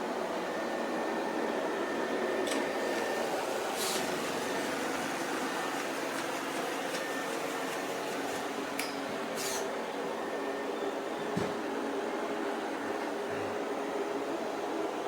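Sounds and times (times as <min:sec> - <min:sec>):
robot vacuum motor whirring: 0:09.4 - 0:09.7.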